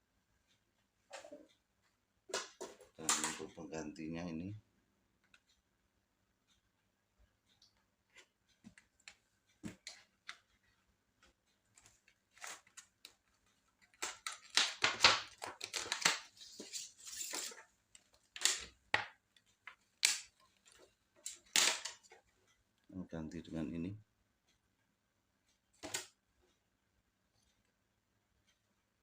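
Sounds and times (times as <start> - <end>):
plastic clicks and knocks: 13.9 - 16.4.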